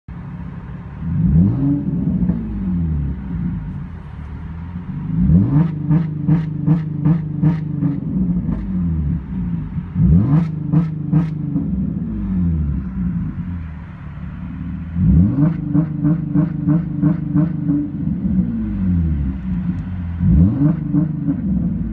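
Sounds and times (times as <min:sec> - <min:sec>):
car engine idling: 0:00.1 - 0:21.9
car engine revving: 0:00.2 - 0:21.9.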